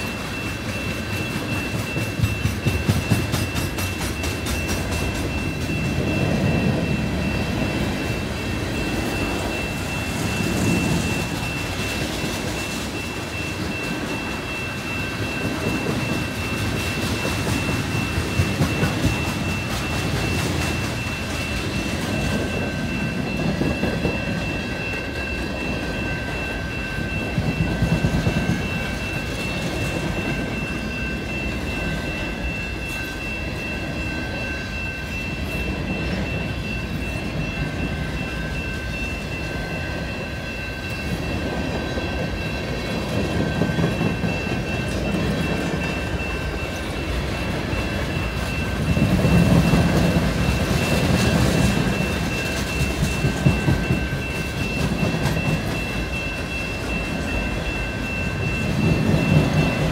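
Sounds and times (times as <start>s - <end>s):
freight train wheels rumbling: 0.0s - 59.9s
steady high tone: 0.0s - 59.9s.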